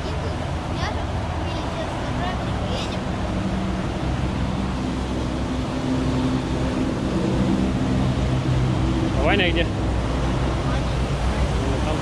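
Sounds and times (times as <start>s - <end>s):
car engine hum: 0.0s - 12.0s
road noise: 0.0s - 12.0s.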